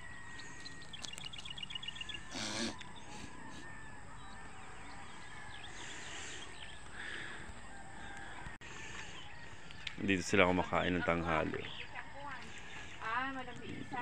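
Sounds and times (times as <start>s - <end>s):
faint bird calls: 0.0s - 10.0s.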